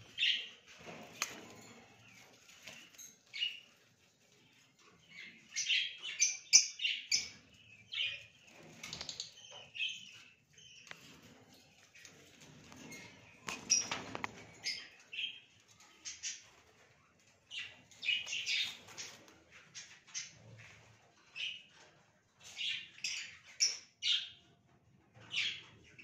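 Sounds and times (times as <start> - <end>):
bird chirping: 4.8 - 16.5.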